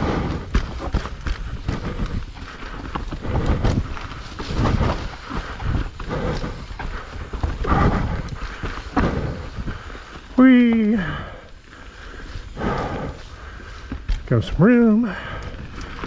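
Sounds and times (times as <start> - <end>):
mountain bike rattling over rocks: 0.0 - 16.0
tyre noise: 0.0 - 16.0.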